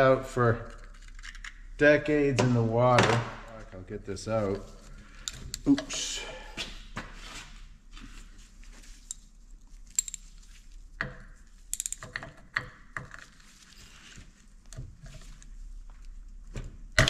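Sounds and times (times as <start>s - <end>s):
hand tools clicking on metal: 9.9s - 10.3s, 11.7s - 12.2s.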